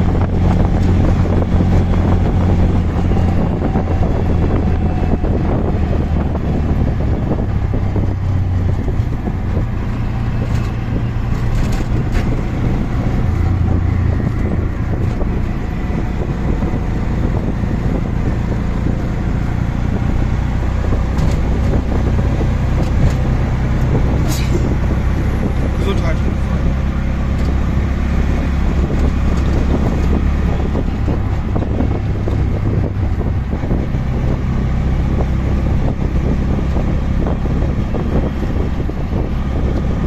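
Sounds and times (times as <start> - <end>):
auto rickshaw engine running: 0.0 - 40.0
road and traffic noise: 0.0 - 40.0.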